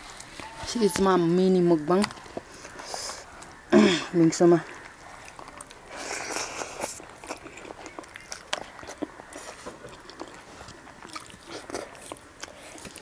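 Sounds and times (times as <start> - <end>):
person chewing with mouth clicks: 4.7 - 13.0.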